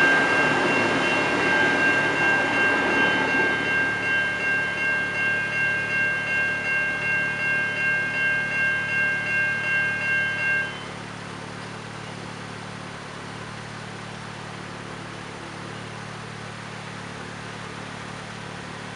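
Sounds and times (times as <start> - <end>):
level crossing bell ringing: 0.0 - 11.0
road vehicle engines humming: 0.0 - 18.9.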